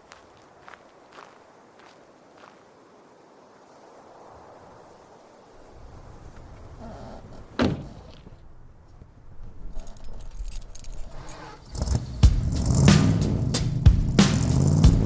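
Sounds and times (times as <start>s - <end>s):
metallic jingling and clicking: 9.7s - 11.5s.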